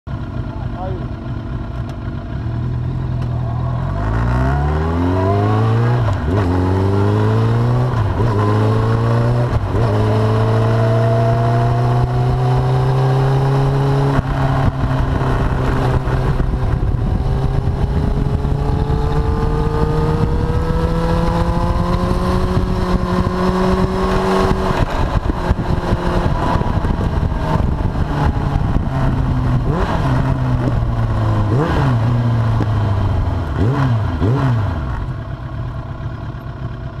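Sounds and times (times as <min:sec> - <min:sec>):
motorcycle engine shifting gears: 0:00.2 - 0:37.0
wind noise: 0:05.0 - 0:34.9.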